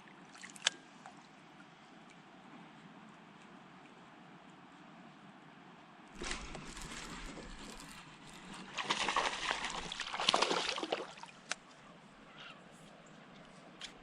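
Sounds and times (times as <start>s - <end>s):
water sloshing against kayak: 6.2s - 11.8s.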